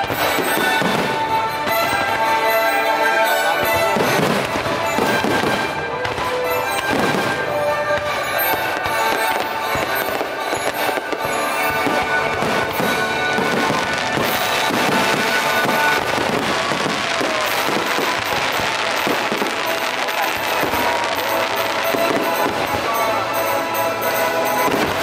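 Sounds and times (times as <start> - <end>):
fireworks bursting and crackling: 0.0 - 25.0
patriotic orchestral music: 0.0 - 25.0.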